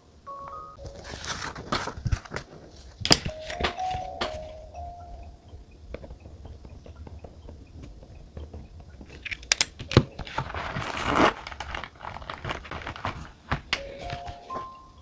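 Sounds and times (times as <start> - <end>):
sharp clicks: 0.4 - 14.3
small clicks and taps: 0.4 - 14.8
paper rustling: 0.8 - 4.6, 9.1 - 14.8.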